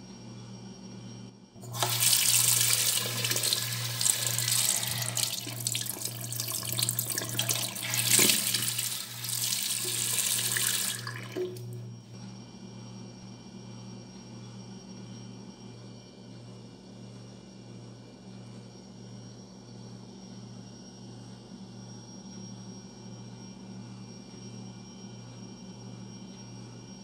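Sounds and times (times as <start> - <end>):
tap water running into sink: 1.6 - 11.8.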